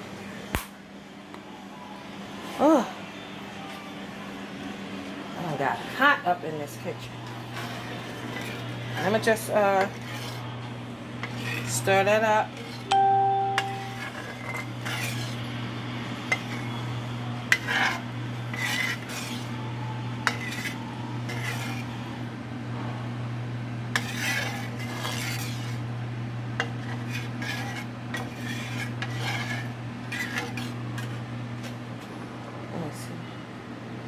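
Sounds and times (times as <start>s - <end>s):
steady low hum: 6.8s - 34.0s
utensil scraping and clinking pan: 7.2s - 10.5s, 11.2s - 22.2s, 23.9s - 25.9s, 26.6s - 31.8s.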